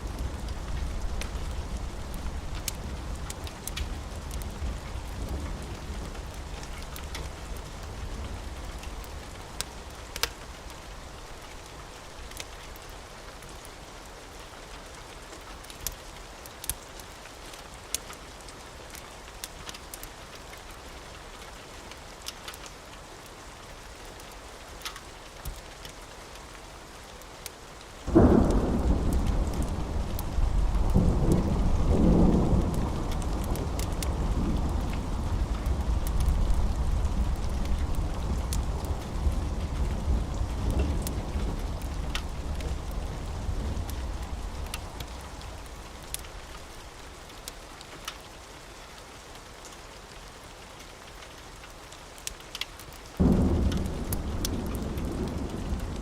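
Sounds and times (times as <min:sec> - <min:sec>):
thunderclap and rumble: 0:00.0 - 0:10.3, 0:28.1 - 0:46.8, 0:53.2 - 0:56.0
steady rain: 0:00.0 - 0:56.0
wood fire crackling: 0:00.0 - 0:56.0.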